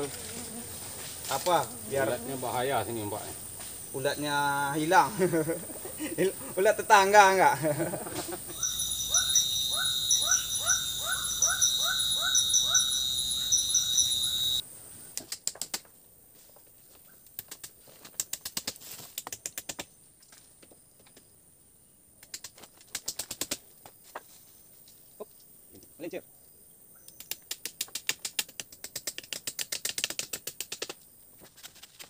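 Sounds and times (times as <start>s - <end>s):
insects shrilling: 0.0s - 15.3s
rising chirps: 8.4s - 14.6s.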